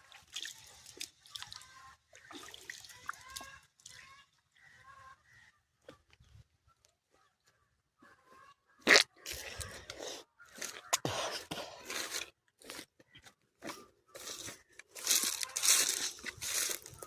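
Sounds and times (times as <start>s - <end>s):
crunching and scraping: 9.2s - 17.0s.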